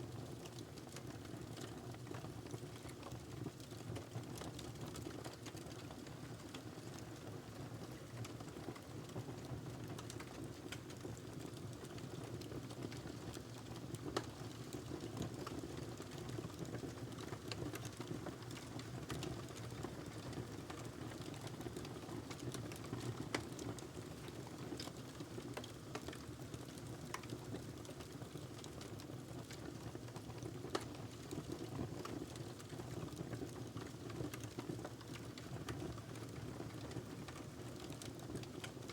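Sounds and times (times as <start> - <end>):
wood fire crackling: 9.8 - 38.9.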